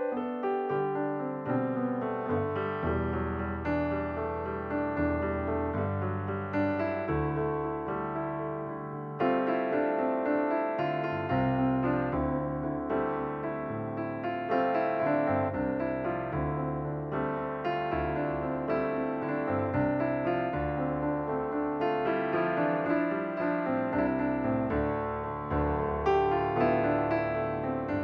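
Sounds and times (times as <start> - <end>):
gentle piano music: 0.0 - 28.0.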